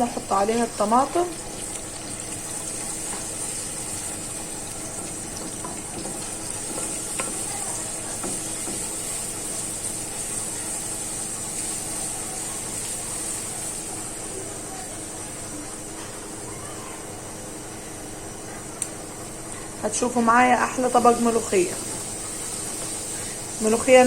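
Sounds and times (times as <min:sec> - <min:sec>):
garlic sizzling in a pan: 0:00.0 - 0:15.5, 0:18.7 - 0:24.0.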